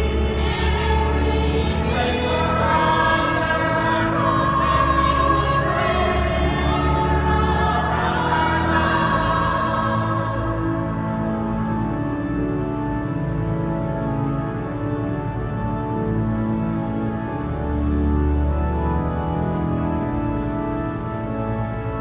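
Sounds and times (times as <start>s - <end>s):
choir singing: 0.0s - 11.0s
sustained low bass notes: 0.0s - 22.0s.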